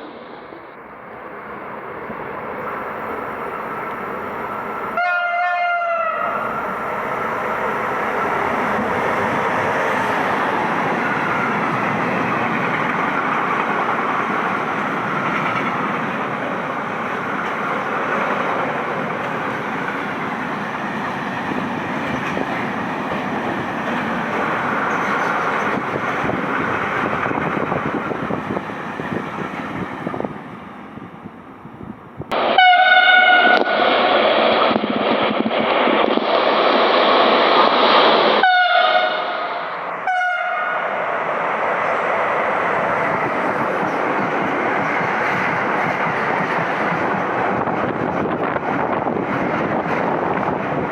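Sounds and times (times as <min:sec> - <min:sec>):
freight train rolling past: 0:00.0 - 0:50.9
train horn: 0:04.9 - 0:06.9, 0:32.3 - 0:33.9, 0:38.4 - 0:40.9.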